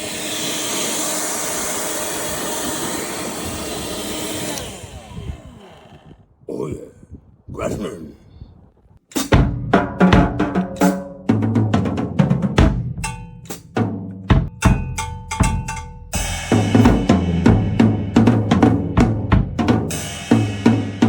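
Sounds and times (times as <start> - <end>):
drum kit beat: 9.1 - 21.0.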